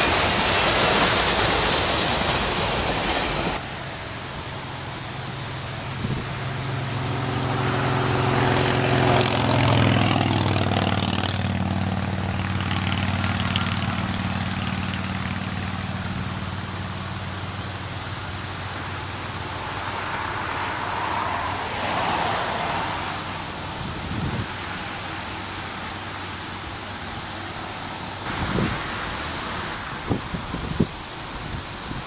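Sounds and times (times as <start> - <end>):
train wheels rumbling on rails: 0.0 - 4.7
diesel locomotive engine drone: 0.0 - 32.0.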